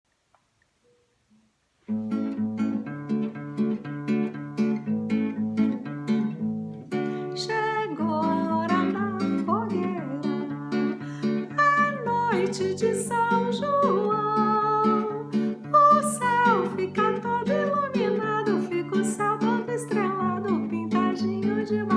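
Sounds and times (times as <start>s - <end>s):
acoustic guitar strumming: 1.9s - 21.9s
woman singing: 7.2s - 21.9s.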